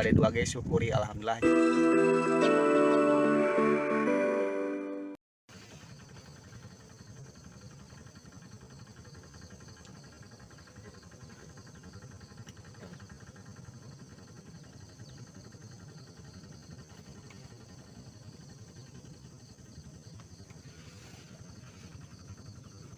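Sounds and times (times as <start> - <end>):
faint ticks: 9.8 - 10.0.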